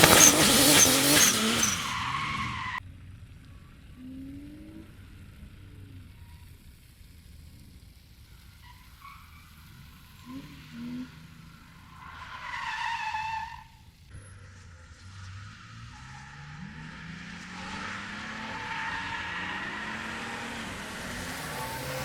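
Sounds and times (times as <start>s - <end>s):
car engine revving: 0.0s - 2.8s, 14.1s - 22.0s
car tyres squealing: 0.0s - 2.8s, 8.3s - 22.0s.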